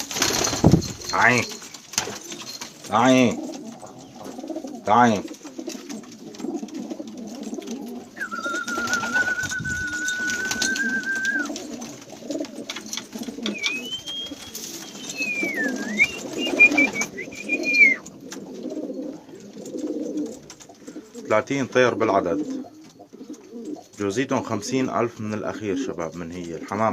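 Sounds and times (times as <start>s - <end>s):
pigeons cooing: 0.0s - 26.9s.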